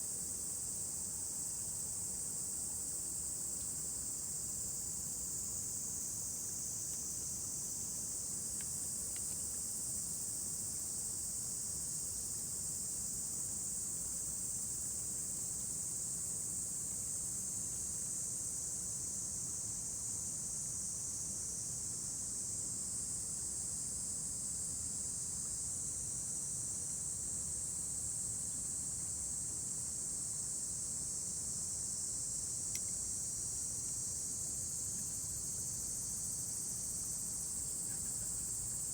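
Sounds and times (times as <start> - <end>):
insects chirring: 32.6 - 38.9.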